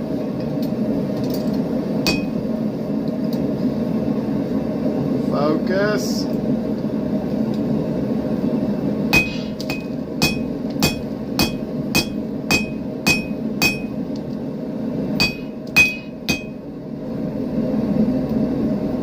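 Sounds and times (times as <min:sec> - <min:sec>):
low hum: 0:01.6 - 0:05.2, 0:06.6 - 0:19.0
hammer striking metal on anvil: 0:02.1 - 0:02.5, 0:09.2 - 0:14.0, 0:15.2 - 0:16.6.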